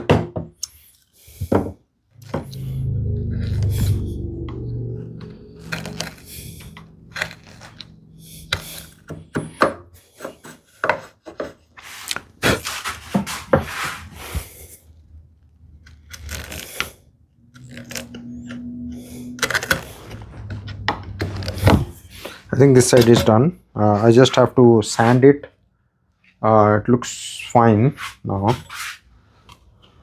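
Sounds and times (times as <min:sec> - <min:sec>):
gouge scraping wood: 0:05.0 - 0:14.2, 0:17.6 - 0:22.4.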